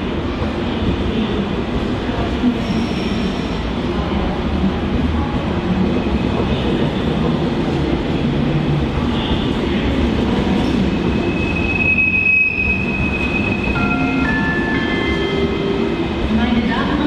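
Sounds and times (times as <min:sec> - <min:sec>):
train rumbling close by: 0:00.0 - 0:17.0
high wheel squeal: 0:11.1 - 0:14.0.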